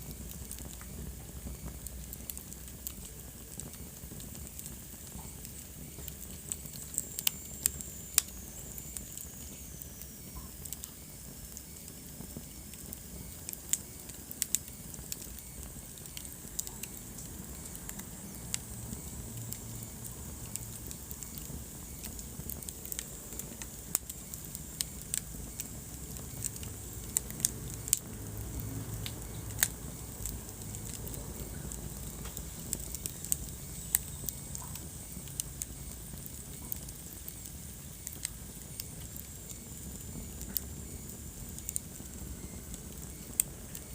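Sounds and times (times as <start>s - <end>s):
fireplace fire crackling: 0.0s - 43.9s.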